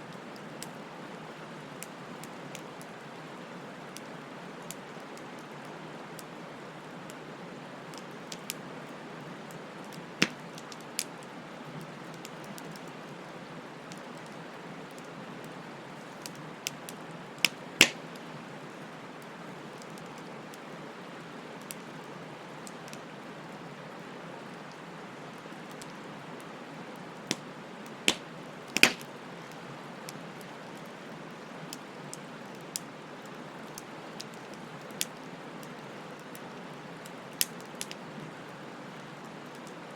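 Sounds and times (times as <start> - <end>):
wood bonfire hissing: 0.0 - 39.9
fire crackling and popping: 7.1 - 13.2, 13.8 - 20.8, 21.4 - 23.4, 24.0 - 39.9.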